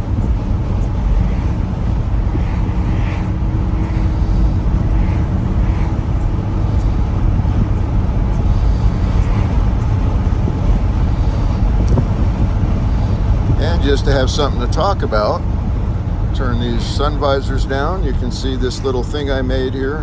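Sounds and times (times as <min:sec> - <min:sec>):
car engine rumbling: 0:00.0 - 0:20.0
road noise: 0:00.0 - 0:20.0.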